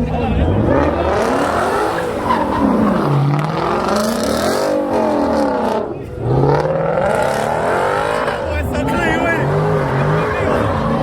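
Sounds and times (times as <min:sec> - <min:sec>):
car engine revving hard: 0:00.0 - 0:11.0
tyres squealing: 0:00.6 - 0:11.0.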